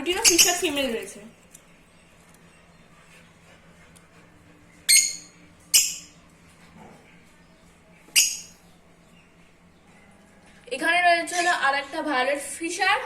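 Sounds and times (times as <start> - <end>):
lovebirds squawking: 0.1 - 1.1.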